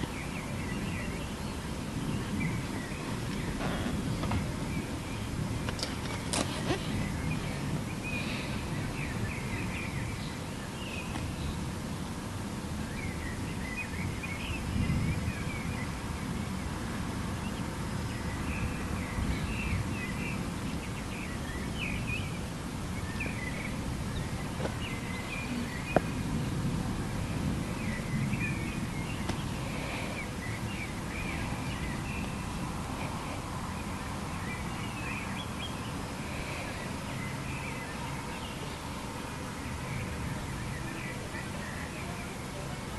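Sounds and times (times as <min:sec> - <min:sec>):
small birds chirping: 0:00.0 - 0:12.1, 0:17.4 - 0:42.7
low outdoor rumble: 0:00.0 - 0:19.7.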